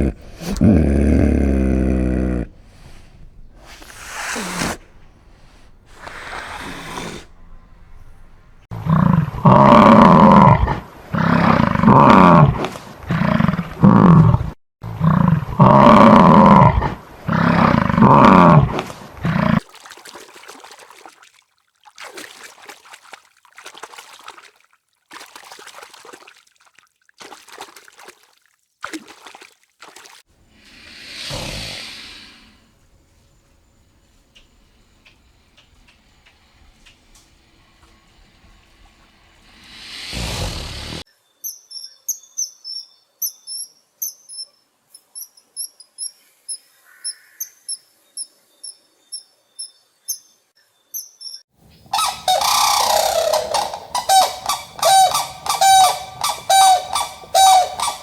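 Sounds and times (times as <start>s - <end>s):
large farm animal calling: 52.0s - 58.0s.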